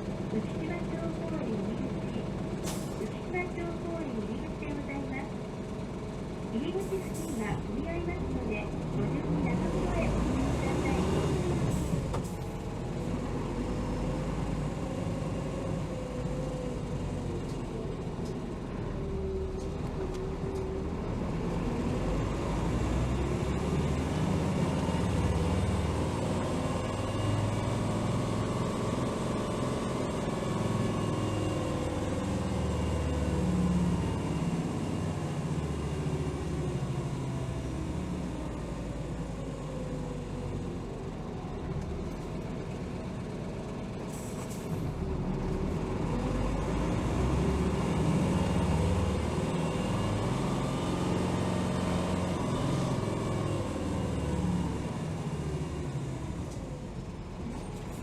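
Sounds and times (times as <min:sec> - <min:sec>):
bus diesel engine rumbling: 0:00.0 - 0:58.0.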